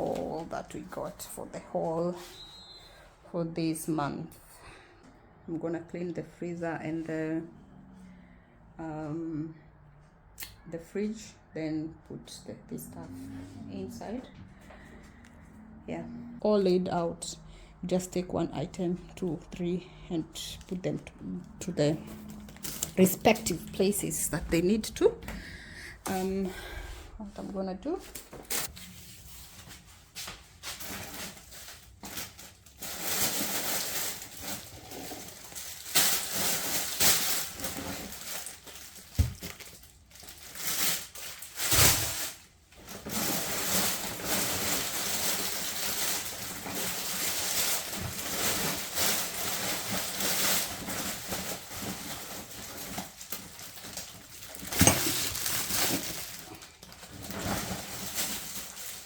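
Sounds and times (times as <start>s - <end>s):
plastic packaging crinkling: 22.0s - 25.2s, 30.5s - 59.0s.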